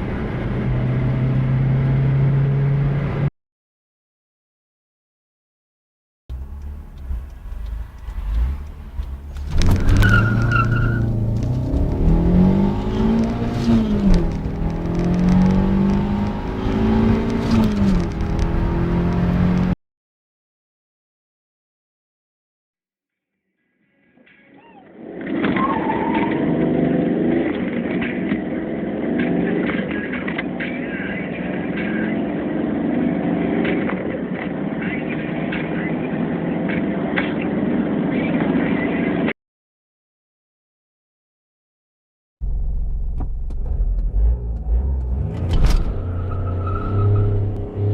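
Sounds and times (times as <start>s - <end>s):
car engine accelerating through gears: 0.0s - 3.3s, 6.3s - 19.8s, 25.3s - 29.9s, 42.4s - 47.9s.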